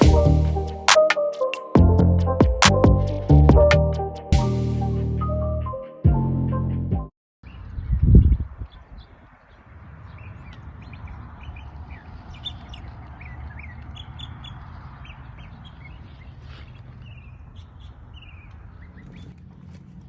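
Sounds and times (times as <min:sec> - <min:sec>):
wild birds chirping: 0:08.6 - 0:20.0.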